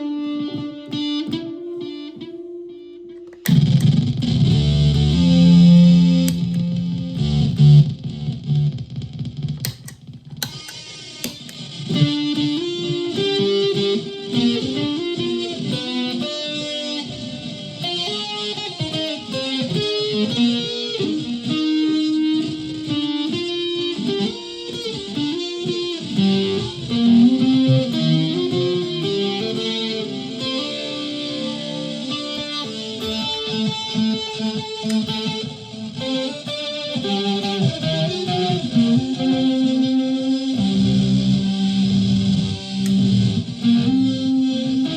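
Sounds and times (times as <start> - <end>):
electric ukulele single notes: 9.6 - 12.0.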